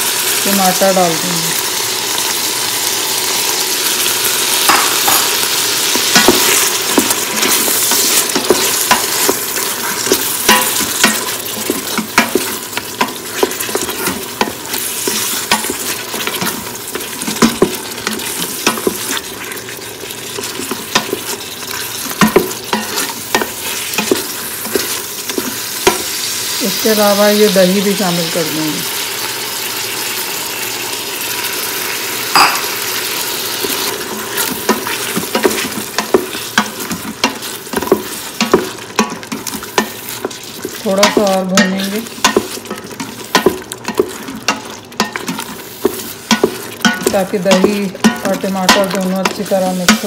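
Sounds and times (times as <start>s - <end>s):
meat sizzling in a pot: 0.0s - 50.0s
spatula scraping and clicking on pot: 4.6s - 26.2s, 33.5s - 50.0s.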